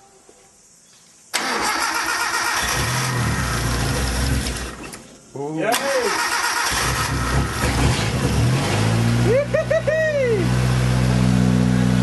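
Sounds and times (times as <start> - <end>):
people whooping: 9.2 - 10.5.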